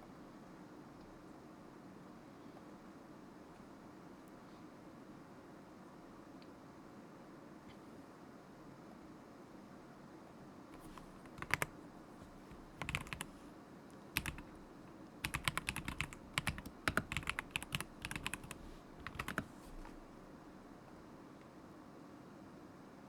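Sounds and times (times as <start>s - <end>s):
mechanical keyboard typing: 10.8s - 13.4s, 14.2s - 14.6s, 15.2s - 20.0s.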